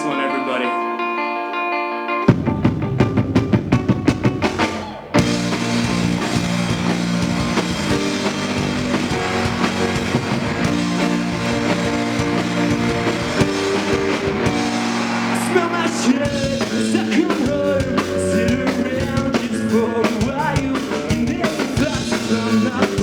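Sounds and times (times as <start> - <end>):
live rock band playing: 0.0 - 23.0
drum hits: 2.3 - 19.6.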